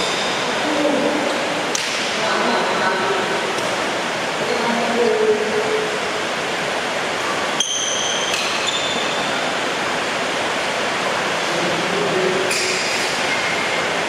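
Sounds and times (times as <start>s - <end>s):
heavy rain hissing: 0.0s - 14.0s
short high squeaks: 7.6s - 9.4s.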